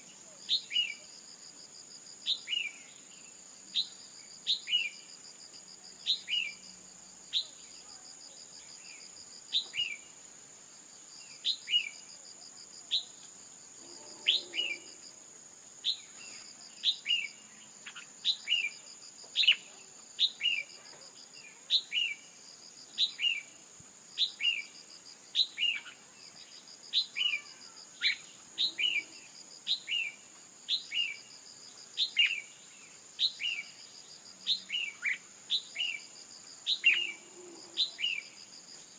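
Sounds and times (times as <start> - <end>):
high insect-like trill: 13.7 - 15.2.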